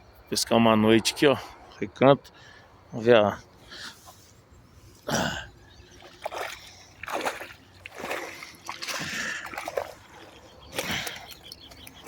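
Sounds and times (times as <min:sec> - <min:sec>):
water splashing and sloshing: 0:04.9 - 0:12.0.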